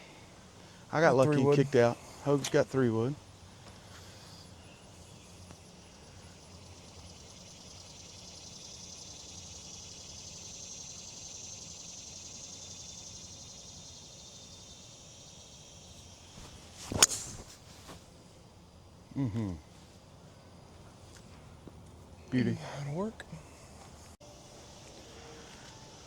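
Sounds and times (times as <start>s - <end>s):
insects chorus: 0.0s - 26.0s
golf club hitting ball: 16.8s - 17.5s.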